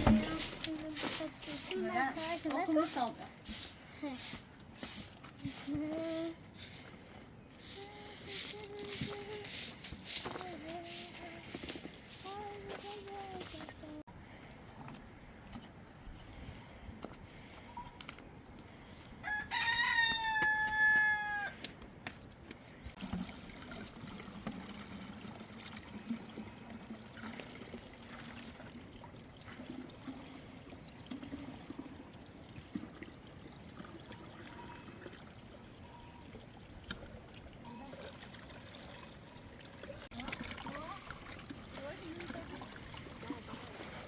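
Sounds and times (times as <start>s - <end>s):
rooster crowing: 19.2s - 21.6s.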